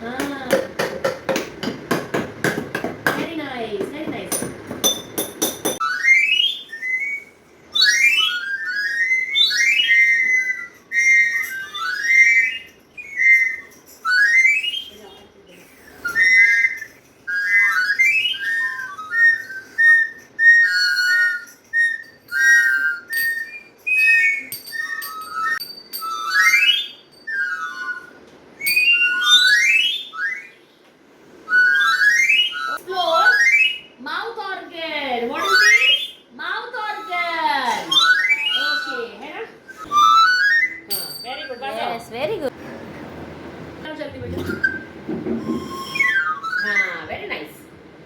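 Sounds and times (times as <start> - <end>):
toy mouth organ whistling notes: 5.8 - 30.7, 31.5 - 34.0, 35.3 - 42.0, 44.4 - 47.1.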